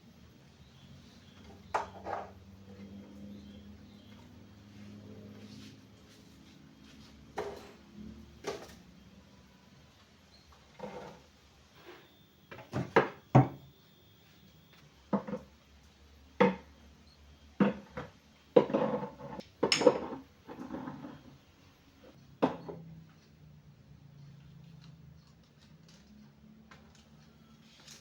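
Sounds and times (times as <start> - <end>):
wood and dishware clattering: 1.7 - 2.4, 17.6 - 21.2.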